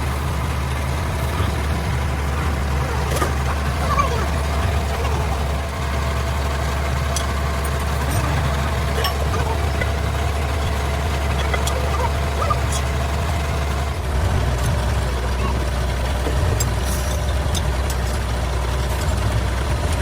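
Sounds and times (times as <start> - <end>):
heavy engine idling: 0.0 - 20.0
sharp metallic clicks: 4.4 - 11.8.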